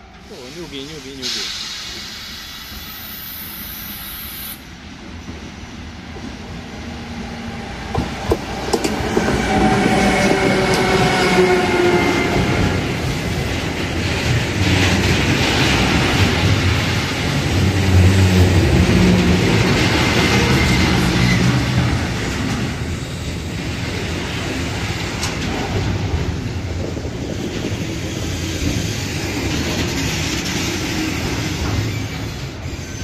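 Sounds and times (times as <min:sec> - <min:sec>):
train rumbling past: 0:00.0 - 0:33.0
wheels clicking over rail joints: 0:07.9 - 0:10.0.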